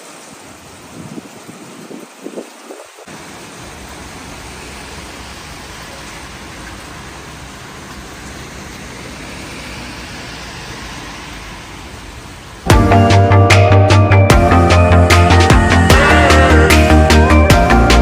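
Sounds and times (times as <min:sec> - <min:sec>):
heavy rain falling: 0:00.0 - 0:12.7.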